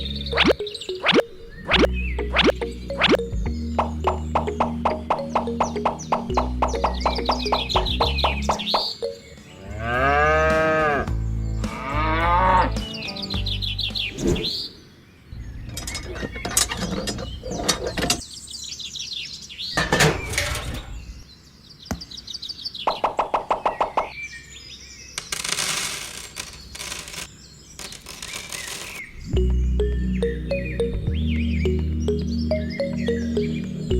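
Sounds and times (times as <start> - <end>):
birds chirping: 0.0 - 25.5, 26.4 - 33.9
cattle mooing: 9.6 - 11.1.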